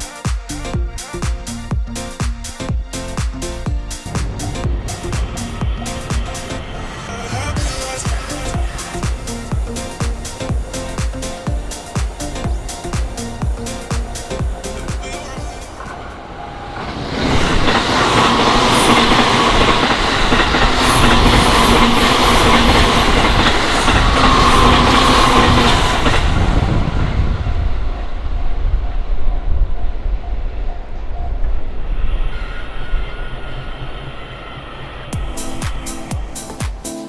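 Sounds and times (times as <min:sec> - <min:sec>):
train whine: 0:00.0 - 0:37.0
train wheels clattering: 0:03.0 - 0:26.7
crossing warning bell: 0:04.3 - 0:26.5.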